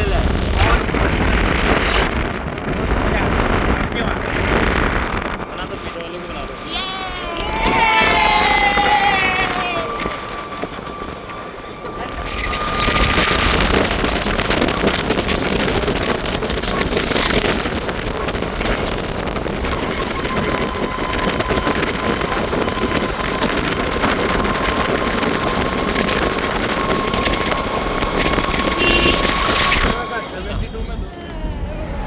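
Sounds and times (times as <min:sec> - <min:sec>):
wind buffeting microphone: 0:00.0 - 0:32.0
vehicle engine and road noise: 0:10.1 - 0:32.0.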